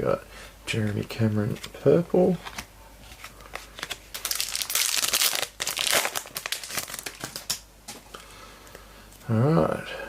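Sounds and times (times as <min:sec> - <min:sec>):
card pack wrapper crinkling and tearing: 0:03.2 - 0:07.6.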